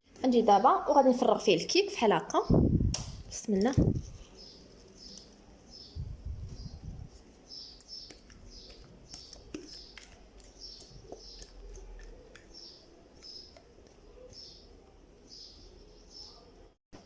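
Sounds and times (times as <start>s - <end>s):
small bird chirping: 3.6s - 14.7s.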